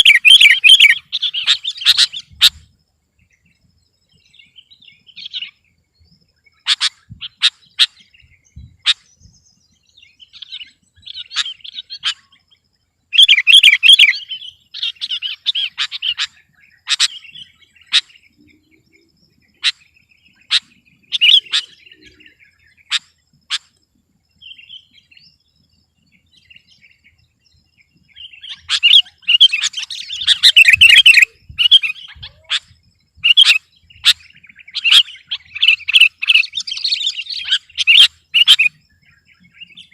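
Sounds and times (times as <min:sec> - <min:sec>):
rapid bird chattering: 0:00.0 - 0:02.6, 0:06.6 - 0:09.2, 0:10.4 - 0:12.4, 0:13.2 - 0:18.3, 0:19.5 - 0:23.8, 0:28.2 - 0:38.8
bulbul singing: 0:00.0 - 0:39.9.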